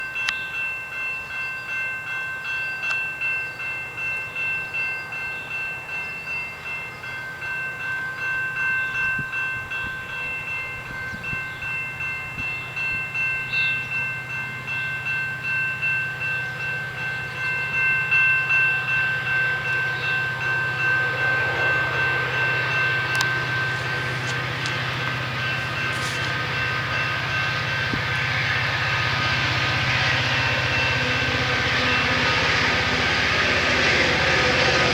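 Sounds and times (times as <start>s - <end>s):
railroad crossing bell ringing: 0.0s - 34.9s
train passing rumble: 0.0s - 34.9s
train wheels clicking: 20.7s - 34.9s.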